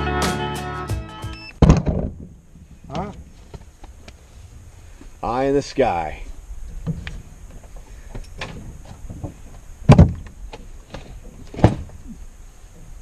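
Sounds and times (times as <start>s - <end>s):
loud thumps: 1.5s - 3.3s, 8.4s - 12.0s.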